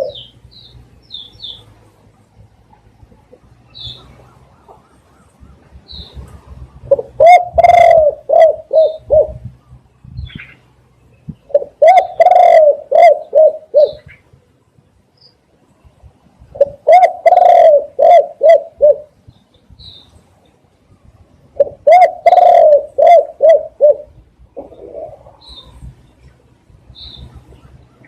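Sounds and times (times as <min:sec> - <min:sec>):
dove cooing: 0:00.0 - 0:00.4, 0:03.1 - 0:09.6, 0:11.5 - 0:14.2, 0:16.5 - 0:19.2, 0:21.5 - 0:25.8.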